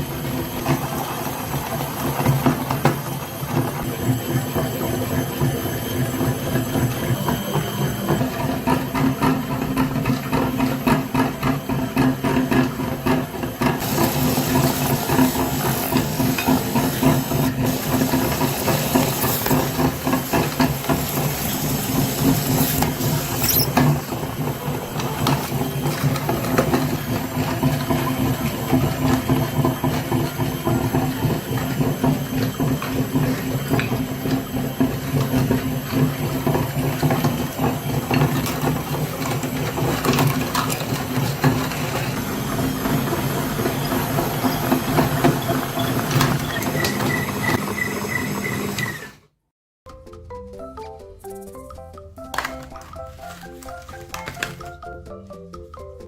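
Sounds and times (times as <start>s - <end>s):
small motor humming: 13.8s - 49.2s.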